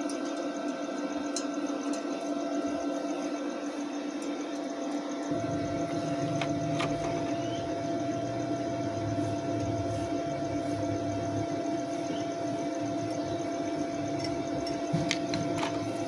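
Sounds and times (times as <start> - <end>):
arc welding machine humming: 0.0 - 16.0
deeper hum: 5.2 - 16.0.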